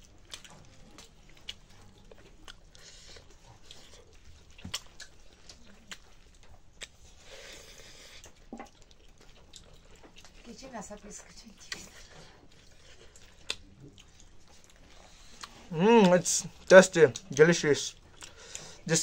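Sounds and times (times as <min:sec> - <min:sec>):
person chewing food: 0:00.0 - 0:19.0
wet smacks and clicks: 0:04.6 - 0:07.0, 0:11.6 - 0:12.0.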